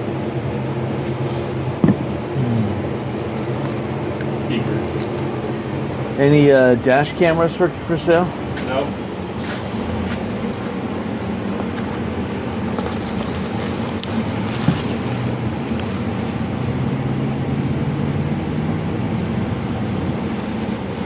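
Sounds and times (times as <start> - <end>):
low mechanical hum: 0.0 - 21.0
outdoor background noise: 0.0 - 21.0.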